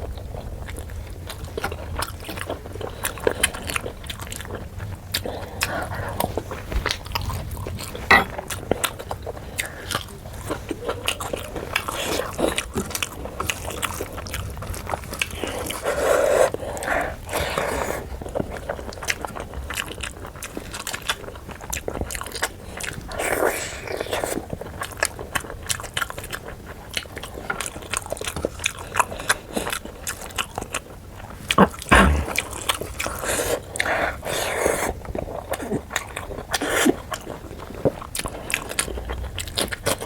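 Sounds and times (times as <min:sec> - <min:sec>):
loud long mouth sounds: 0:31.9 - 0:32.6.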